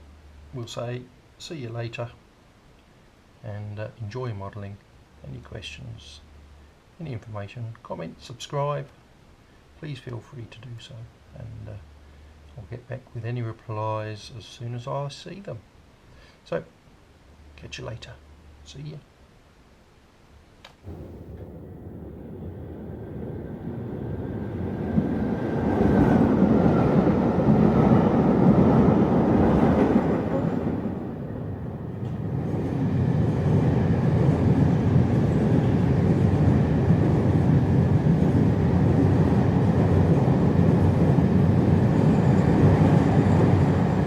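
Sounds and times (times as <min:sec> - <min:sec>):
train rumbling: 0:20.9 - 0:44.0.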